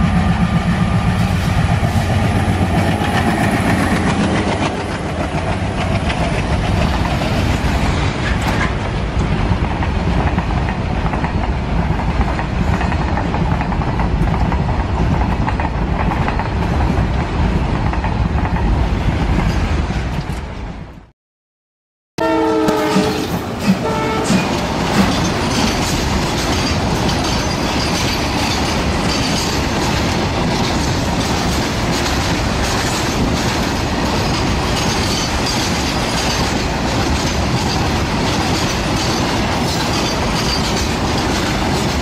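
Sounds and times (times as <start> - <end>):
train clattering rumble: 0.0 - 20.9, 22.8 - 42.0.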